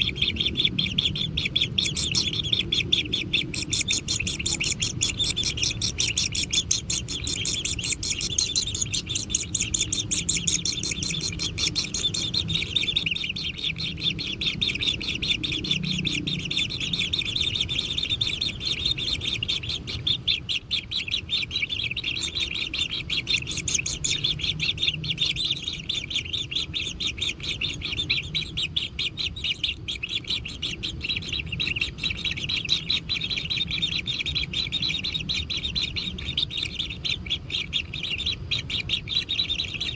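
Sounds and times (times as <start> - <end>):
chicks chirping: 0.0 - 39.9.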